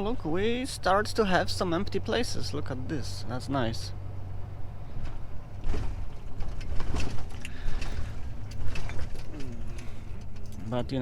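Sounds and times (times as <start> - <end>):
truck engine rumbling: 0.0 - 11.0
knocks and rattles: 5.0 - 10.6.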